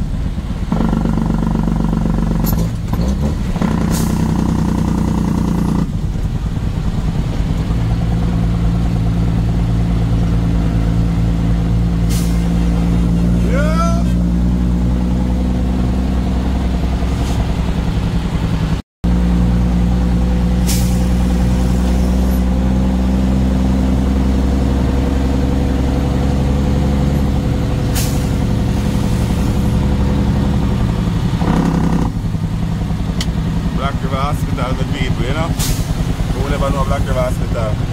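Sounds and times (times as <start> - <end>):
truck engine running: 0.0 - 37.9
short hisses: 12.0 - 12.6, 20.6 - 22.3, 27.9 - 29.7, 35.6 - 36.1.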